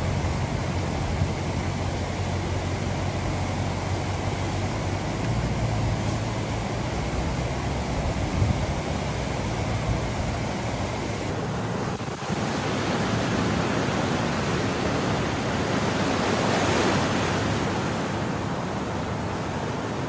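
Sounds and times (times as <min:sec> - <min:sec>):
floodwater rushing: 0:11.0 - 0:20.0.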